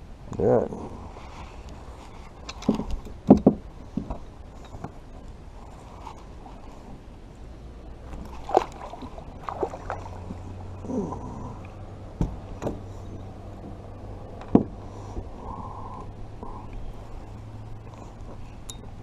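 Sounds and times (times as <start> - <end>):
water lapping against a kayak: 8.1 - 11.8.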